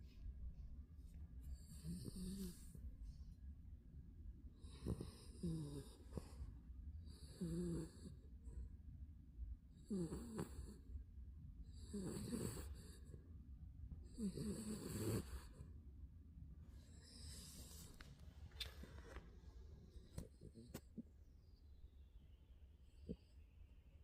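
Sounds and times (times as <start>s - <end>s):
puppy snoring: 1.4s - 2.9s, 4.6s - 8.3s, 9.8s - 10.9s, 11.7s - 13.1s, 14.0s - 15.7s, 16.8s - 18.0s, 19.8s - 21.1s.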